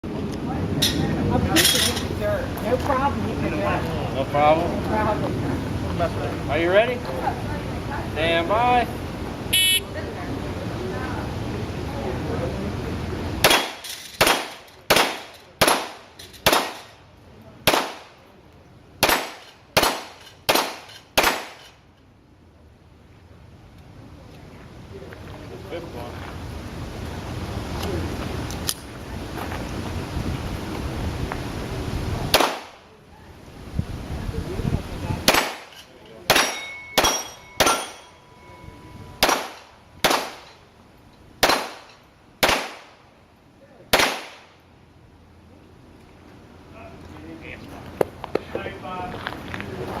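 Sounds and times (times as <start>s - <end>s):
handgun shots hitting steel: 13.5s - 16.9s, 19.0s - 21.7s, 35.3s - 38.1s, 39.2s - 40.6s
steel plates ringing: 35.6s - 40.7s.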